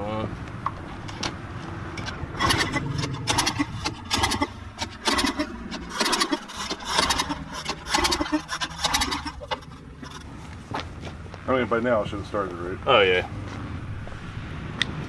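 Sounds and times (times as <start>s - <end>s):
engine pull-start cranking: 1.0s - 10.3s.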